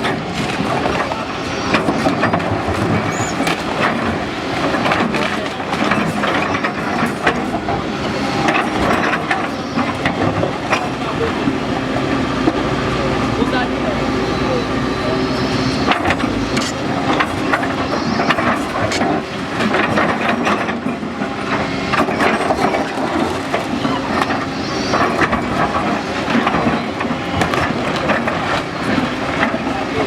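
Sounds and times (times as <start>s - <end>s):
steady background noise: 0.0s - 30.0s
knocks and clattering: 15.9s - 30.0s.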